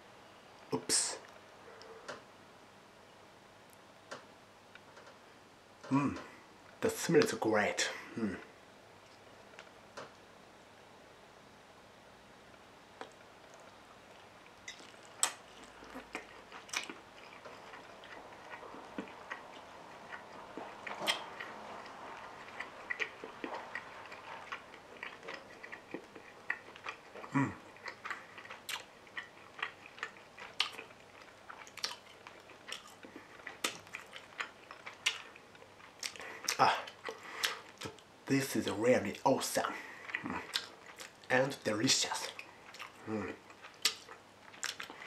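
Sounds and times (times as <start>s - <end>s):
person chewing: 13.0s - 38.1s, 39.2s - 45.0s.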